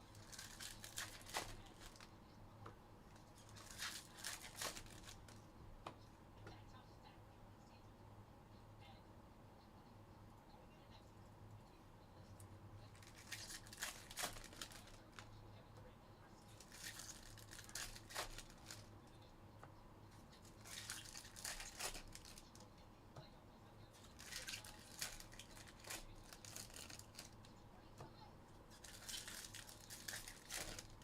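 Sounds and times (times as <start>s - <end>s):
steady low hum: 0.0s - 31.0s
foil wrappers tearing and crinkling: 0.2s - 2.1s, 3.4s - 5.4s, 13.0s - 15.2s, 16.6s - 18.9s, 20.4s - 22.6s, 24.0s - 27.4s, 28.7s - 31.0s.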